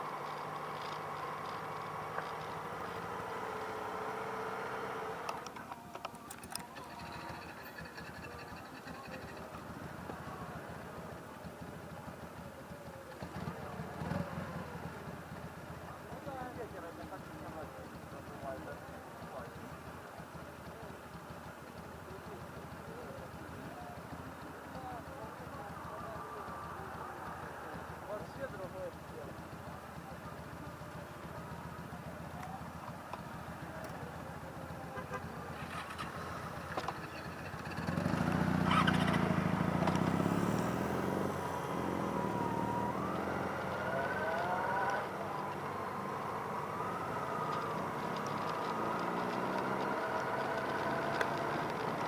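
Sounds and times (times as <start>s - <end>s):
motorcycle engine idling: 0.0s - 52.0s
faint clicks: 5.2s - 10.2s, 35.0s - 39.2s, 46.7s - 52.0s.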